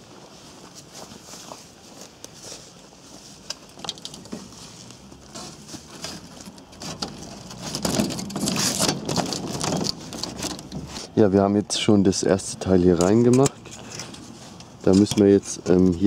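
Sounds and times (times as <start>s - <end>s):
light rustles and clicks: 3.3s - 11.2s, 12.9s - 16.0s
plastic panel rattling against metal frame: 6.8s - 11.0s.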